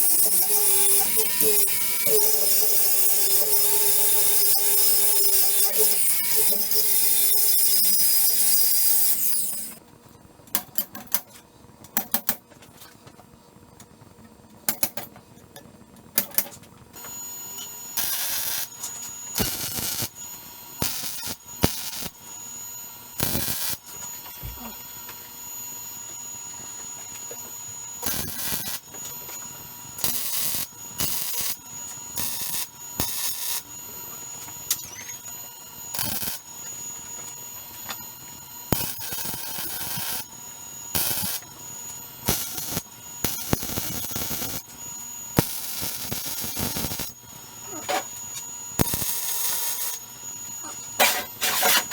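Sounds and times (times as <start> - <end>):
saw cutting: 0.0 - 9.8, 50.7 - 51.9
welder crackling bursts: 0.0 - 9.8, 18.0 - 20.2, 20.8 - 22.3, 23.2 - 24.0, 27.9 - 29.1, 29.9 - 33.7, 35.8 - 36.6, 38.7 - 50.0.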